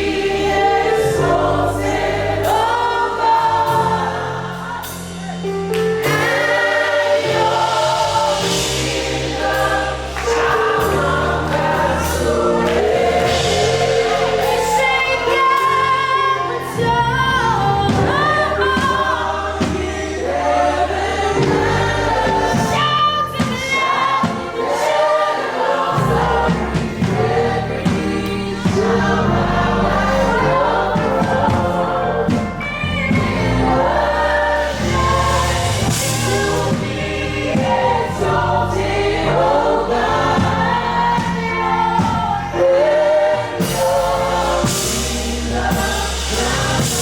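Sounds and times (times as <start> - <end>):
choir singing gospel: 0.0 - 47.0
keyboard chords and bass: 0.0 - 47.0.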